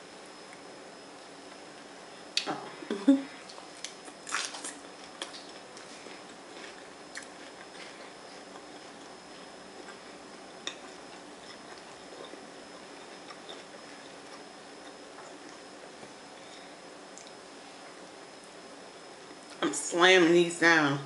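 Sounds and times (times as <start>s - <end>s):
faint room hum: 0.0s - 21.0s
quiet chewing with crunches: 3.4s - 18.6s.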